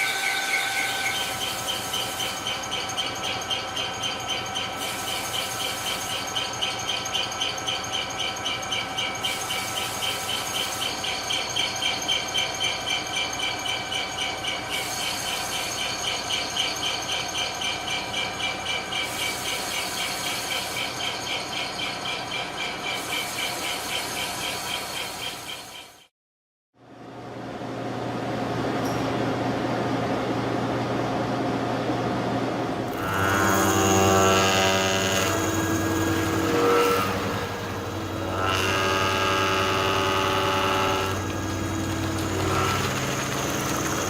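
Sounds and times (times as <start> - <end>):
machine tool cutting metal: 32.9 - 44.0.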